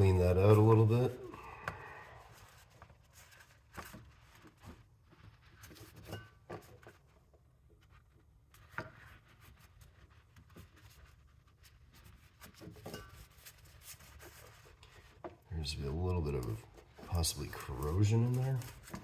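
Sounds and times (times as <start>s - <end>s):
towel rubbing in metal bore: 0.0s - 4.6s, 15.6s - 19.0s.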